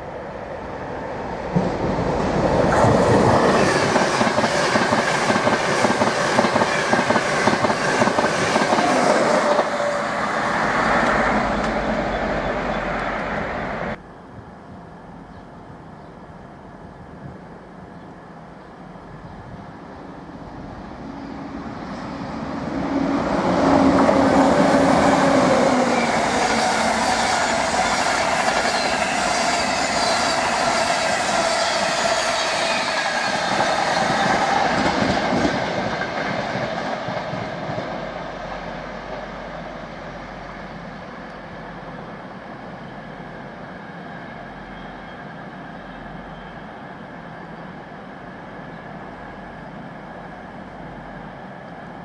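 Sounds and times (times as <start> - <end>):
train wheels rumbling on track: 0.0 - 14.0, 18.8 - 52.0.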